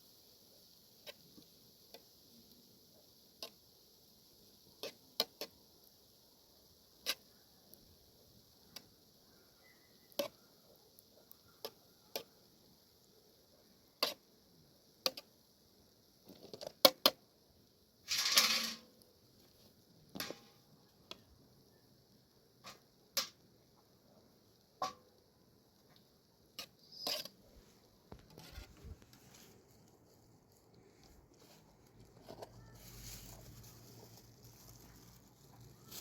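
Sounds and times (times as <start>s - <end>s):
faint high hiss: 0.0s - 36.0s
objects clicking and knocking: 18.1s - 18.9s
rustling scrape: 18.1s - 20.4s, 26.6s - 36.0s.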